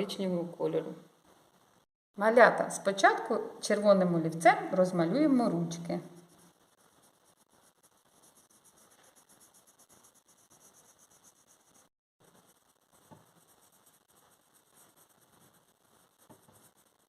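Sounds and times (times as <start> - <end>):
pencil scratching on paper: 6.0 - 17.0.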